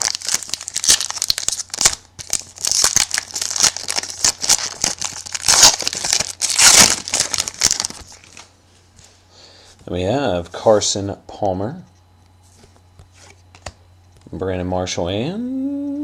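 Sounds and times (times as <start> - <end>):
card pack wrapper crinkling: 0.0 - 8.5.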